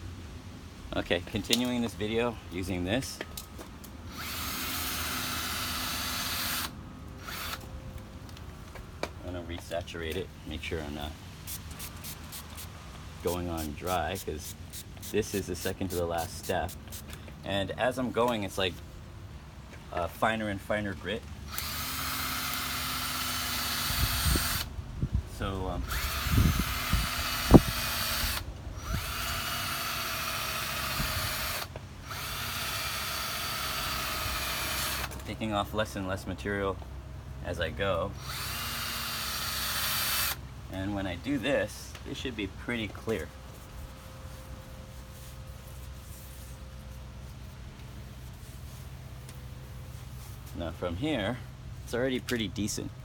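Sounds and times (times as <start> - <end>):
cordless drill sanding plastic: 4.1 - 7.6, 21.5 - 24.7, 25.8 - 35.1, 38.2 - 40.4.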